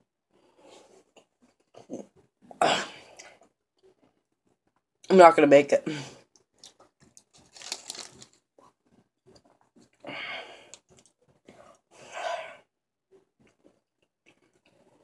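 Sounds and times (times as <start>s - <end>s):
chewing chocolate: 6.4s - 10.1s
heavy breaths: 10.0s - 12.7s.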